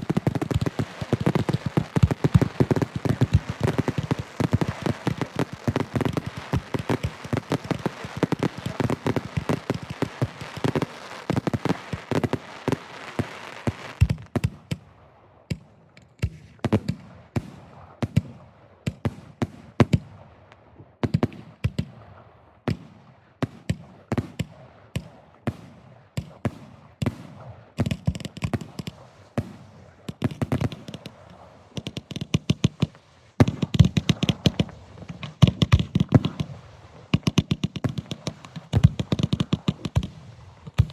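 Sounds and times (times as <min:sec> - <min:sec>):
firework booms: 0:00.0 - 0:14.8, 0:29.4 - 0:40.9
fireworks bangs and crackle: 0:00.0 - 0:40.9.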